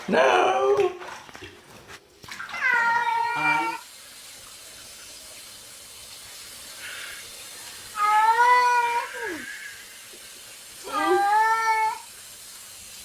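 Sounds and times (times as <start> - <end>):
steady hiss: 3.7 - 10.9.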